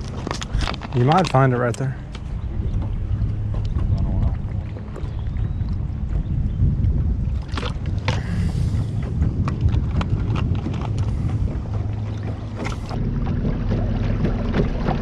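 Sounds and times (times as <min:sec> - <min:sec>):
clicks and knocks of handled gear: 0:00.0 - 0:02.2, 0:09.4 - 0:11.2
low steady hum: 0:00.0 - 0:15.0
wind rumbling on microphone: 0:00.0 - 0:15.0.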